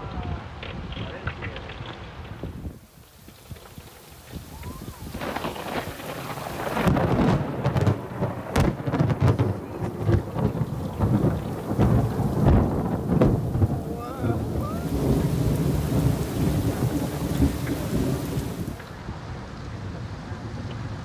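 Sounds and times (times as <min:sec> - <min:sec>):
sharp raindrop hits: 0:02.2 - 0:19.0
thunder rumbling: 0:02.3 - 0:19.0
heavy rain pelting down: 0:02.4 - 0:19.1.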